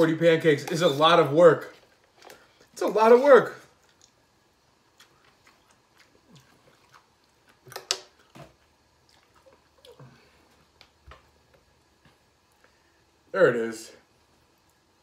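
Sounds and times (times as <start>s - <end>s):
man chewing food: 1.7s - 2.8s, 3.6s - 13.2s.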